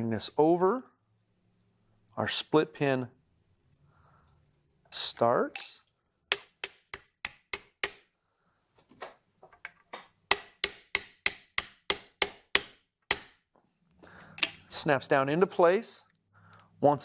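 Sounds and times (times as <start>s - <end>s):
hammer tapping metal pin: 5.6s - 8.1s, 10.3s - 13.4s.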